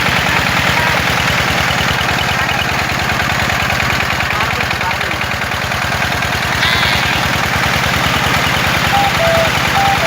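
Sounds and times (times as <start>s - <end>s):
tractor engine idling: 0.0s - 10.0s
short two-note tones: 8.9s - 10.0s.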